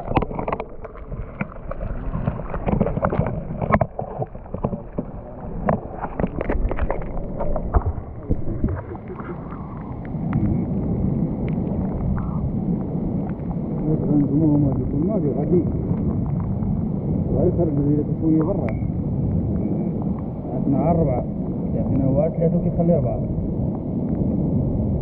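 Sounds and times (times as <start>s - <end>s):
small clicks and knocks: 0.0s - 7.8s
water splashing and sloshing: 0.0s - 14.9s.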